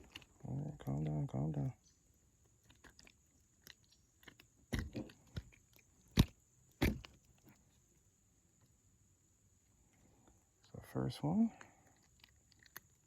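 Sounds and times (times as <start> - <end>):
clicks and knocks in plastic kayak: 2.6 - 7.6.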